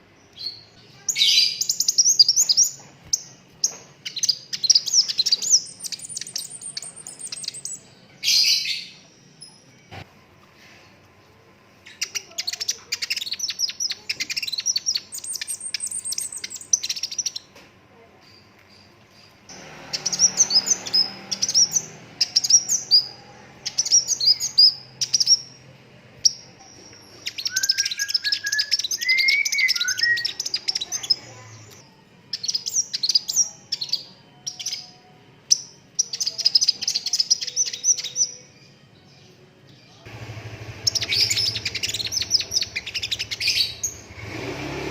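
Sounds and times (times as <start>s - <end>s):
sunbird chirps and trills: 0.0s - 9.9s, 11.8s - 17.5s, 18.2s - 38.8s, 39.8s - 44.2s.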